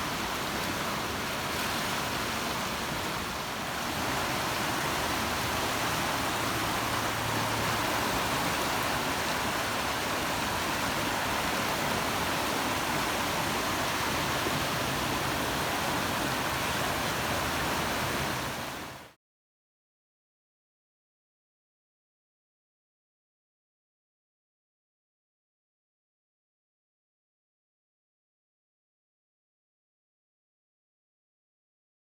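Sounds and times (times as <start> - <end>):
heavy rain: 0.0 - 19.1
running floodwater: 0.0 - 19.2.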